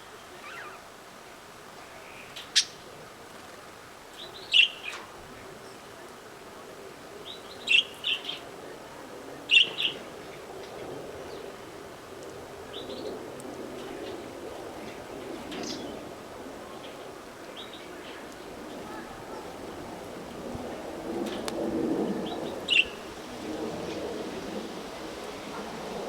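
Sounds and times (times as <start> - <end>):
canaries chirping: 0.4 - 0.8.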